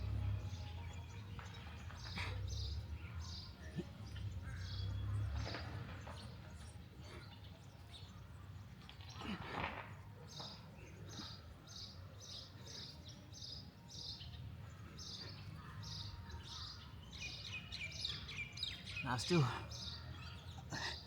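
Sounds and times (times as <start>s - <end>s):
low outdoor rumble: 0.0s - 7.1s.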